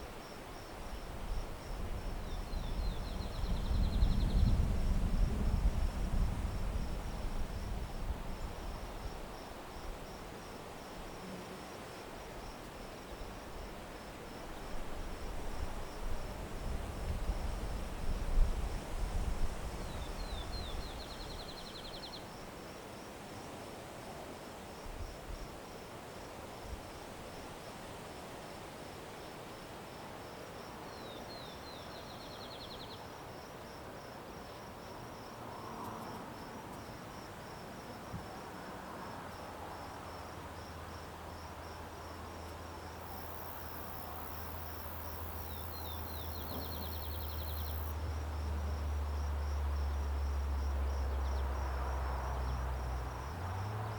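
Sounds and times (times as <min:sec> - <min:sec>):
crickets chirping: 0:00.0 - 0:53.9
songbird singing: 0:00.6 - 0:04.7, 0:19.8 - 0:22.4, 0:30.9 - 0:33.1, 0:43.0 - 0:53.7.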